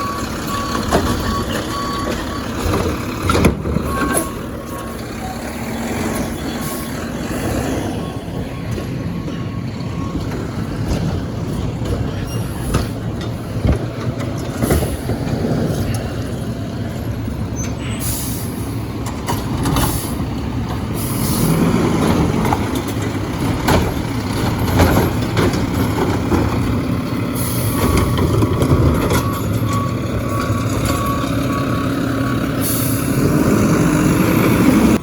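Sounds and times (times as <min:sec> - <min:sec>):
reversing beeps: 0:00.0 - 0:13.3, 0:27.4 - 0:33.0
garbage truck engine running: 0:00.0 - 0:35.0
air brakes hissing: 0:17.6 - 0:18.9, 0:19.8 - 0:20.3, 0:21.0 - 0:21.6, 0:32.6 - 0:33.2.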